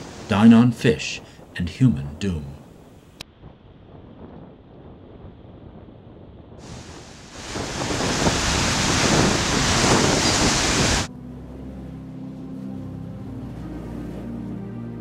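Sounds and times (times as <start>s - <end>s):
waves breaking on shore: 0.0s - 1.5s, 6.6s - 11.1s
wind buffeting microphone: 2.7s - 11.1s
low music drone: 11.0s - 15.0s.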